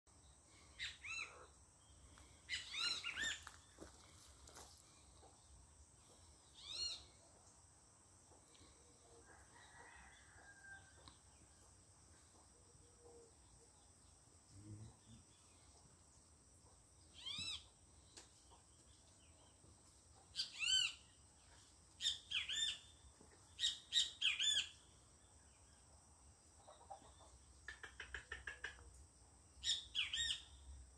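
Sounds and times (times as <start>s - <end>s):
songbirds chirping: 0.1s - 30.9s.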